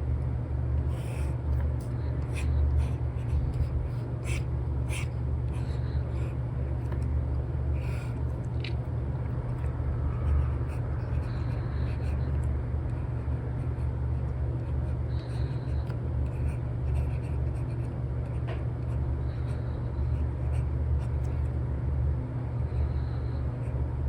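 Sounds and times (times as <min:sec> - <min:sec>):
low rumble of white noise: 0:00.0 - 0:24.0
stylus scratching on tablet: 0:00.9 - 0:07.0, 0:07.8 - 0:08.4, 0:09.4 - 0:21.5.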